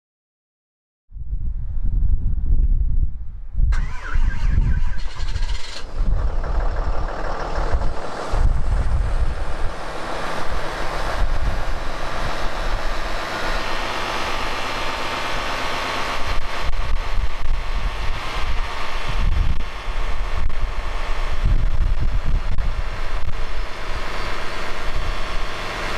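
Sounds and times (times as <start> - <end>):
diesel engine cold start: 3.7 - 16.5
diesel engine idling: 3.8 - 25.9.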